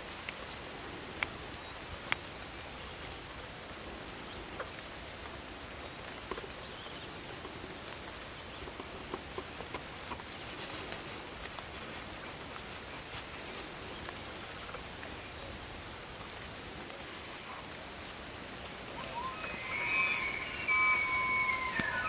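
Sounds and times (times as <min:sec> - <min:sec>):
rain and wind in trees: 0:00.0 - 0:22.0
insect trill: 0:17.1 - 0:22.0.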